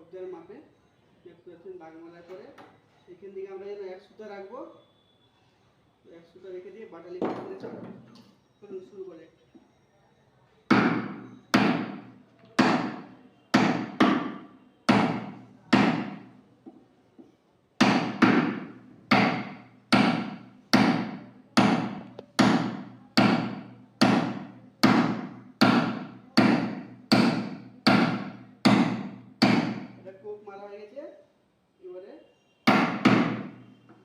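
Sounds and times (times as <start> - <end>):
hammer striking chisel: 10.7 - 16.8, 17.8 - 30.0, 32.6 - 33.7.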